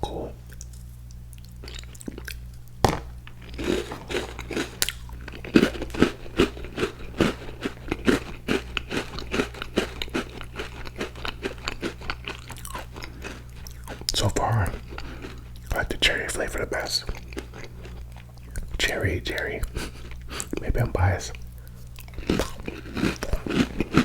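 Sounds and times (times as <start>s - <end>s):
cookie chewing crunches: 0.0s - 24.0s.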